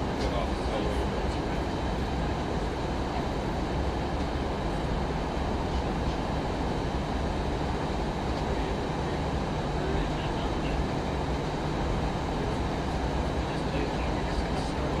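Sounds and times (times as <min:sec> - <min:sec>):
airliner cabin airflow and engine noise: 0:00.0 - 0:15.0.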